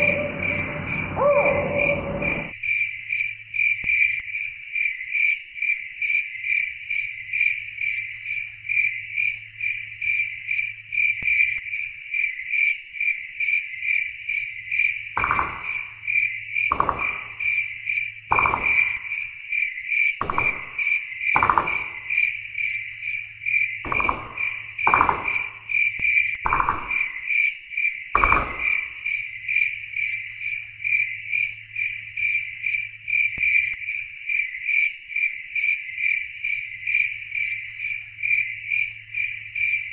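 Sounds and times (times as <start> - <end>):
faint low hum: 0.0 - 2.5
crickets chirping: 0.0 - 39.9.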